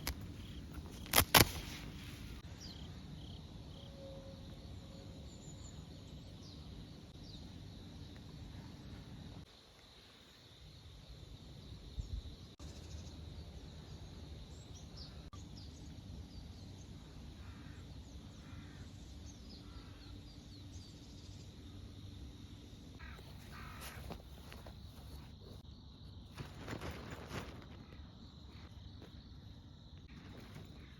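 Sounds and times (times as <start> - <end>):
small birds chirping: 0.0 - 3.9
crow cawing: 23.0 - 24.0.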